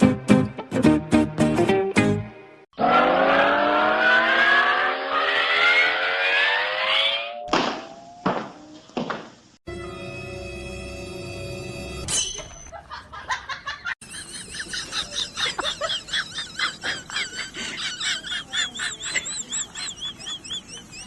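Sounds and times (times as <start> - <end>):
music: 0.0 - 2.6, 9.7 - 12.1.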